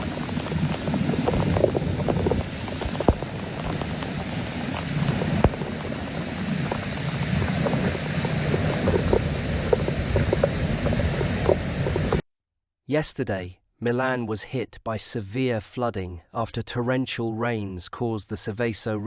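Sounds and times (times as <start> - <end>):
low rumble: 0.0 - 12.2.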